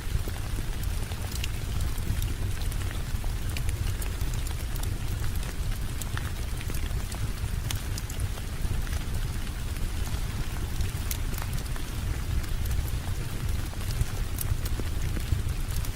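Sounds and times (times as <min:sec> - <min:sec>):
steady rain: 0:00.0 - 0:15.9
wood fire crackling: 0:00.0 - 0:15.9.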